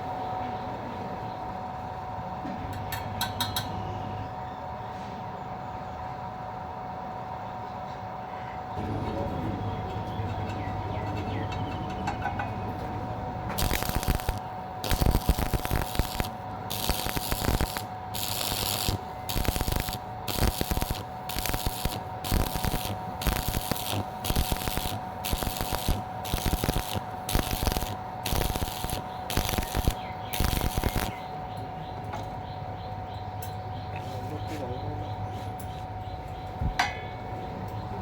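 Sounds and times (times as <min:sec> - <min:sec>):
grinder motor whine: 0:12.7 - 0:31.6
grinder rasping on metal: 0:13.6 - 0:31.2.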